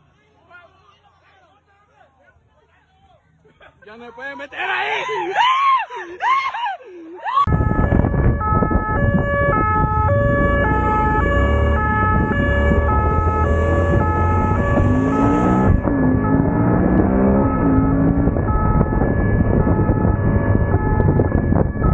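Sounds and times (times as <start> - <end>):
siren wailing: 7.4 - 21.9
two-tone hi-lo siren: 7.4 - 21.9
wind rumble: 7.5 - 21.9
motorcycle engine: 7.6 - 21.9.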